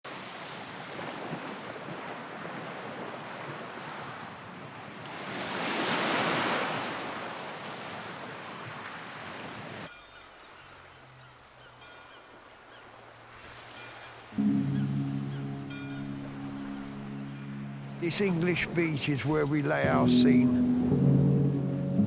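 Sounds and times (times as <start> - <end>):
waves washing on a beach: 0.0 - 9.9.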